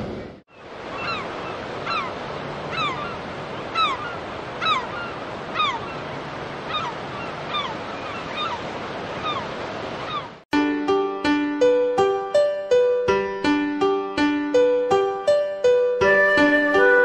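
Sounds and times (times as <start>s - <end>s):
waves washing: 0.0s - 10.4s
bird giving falling cries: 0.5s - 10.4s.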